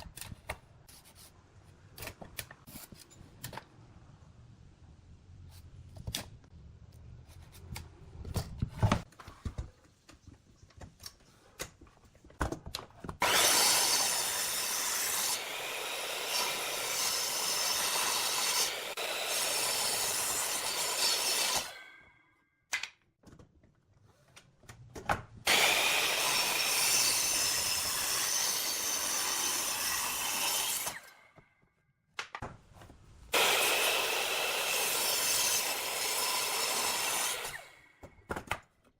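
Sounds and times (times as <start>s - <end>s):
woodworking power tool whine: 13.2s - 22.0s, 25.5s - 31.2s, 33.4s - 37.8s.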